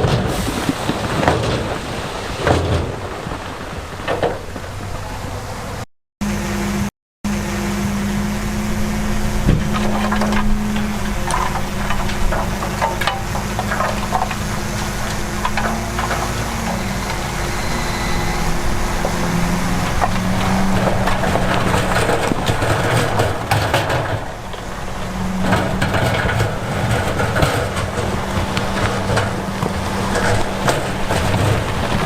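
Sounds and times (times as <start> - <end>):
heavy diesel machinery under load: 0.0 - 32.0
stones crunching and rattling: 9.6 - 17.4.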